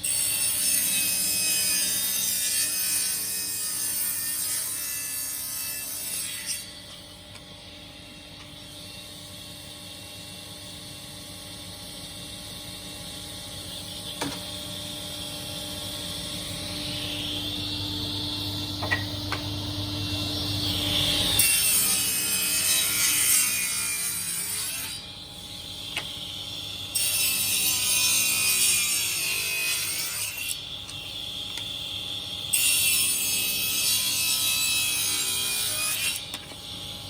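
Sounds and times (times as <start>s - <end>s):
electric saw cutting wood: 0.0s - 7.0s, 19.8s - 25.1s, 26.9s - 31.5s, 32.1s - 36.7s.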